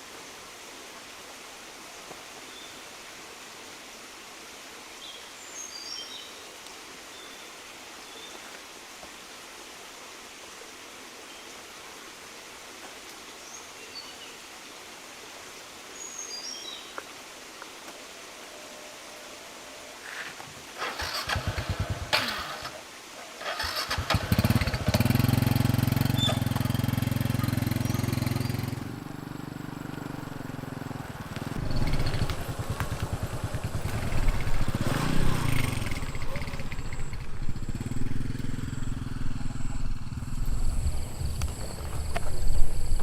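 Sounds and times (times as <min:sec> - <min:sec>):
small engine throbbing: 0:23.5 - 0:41.6.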